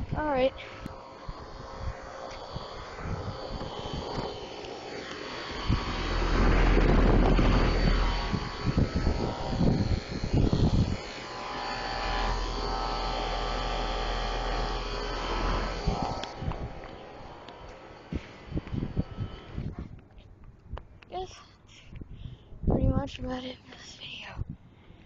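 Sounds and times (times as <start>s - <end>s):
air conditioner fan whir: 0.0s - 19.8s
low compressor hum: 0.0s - 20.0s
wind buffeting microphone: 0.0s - 21.0s, 21.9s - 23.4s.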